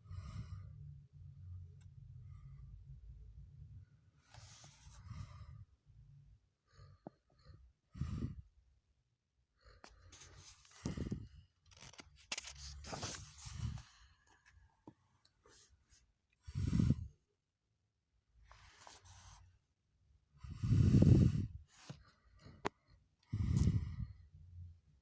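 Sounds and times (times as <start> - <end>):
person breathing and sighing: 7.9 - 8.5, 9.8 - 14.4, 20.4 - 24.3.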